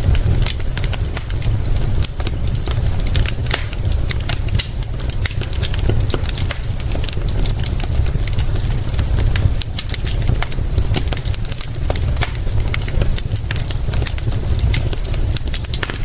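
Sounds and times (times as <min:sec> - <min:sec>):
deep rumble: 0:00.0 - 0:16.0
wood fire crackling and popping: 0:00.0 - 0:16.0.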